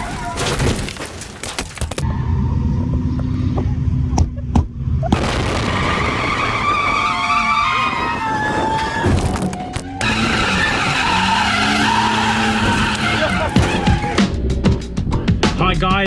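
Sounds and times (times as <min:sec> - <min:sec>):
tyres squealing: 0:05.7 - 0:14.2
car engines running hard: 0:09.6 - 0:14.6.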